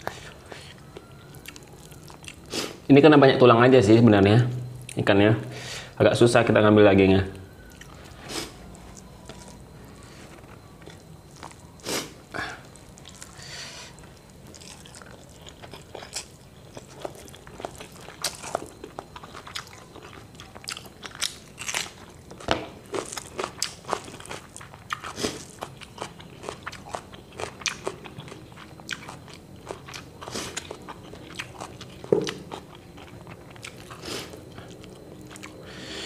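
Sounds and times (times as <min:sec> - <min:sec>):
chewing and crunching fried fish: 0:00.0 - 0:02.5, 0:10.3 - 0:11.9, 0:12.6 - 0:35.7.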